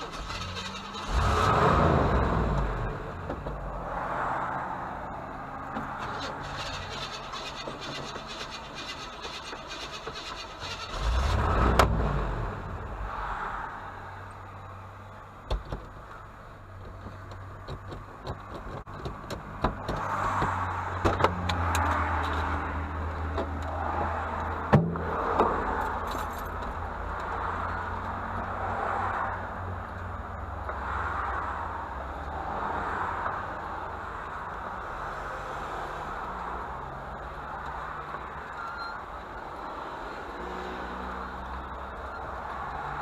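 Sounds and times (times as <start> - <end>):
vehicle engine humming: 0.0 - 43.0
sharp clicks and knocks: 15.4 - 16.2, 16.8 - 22.5.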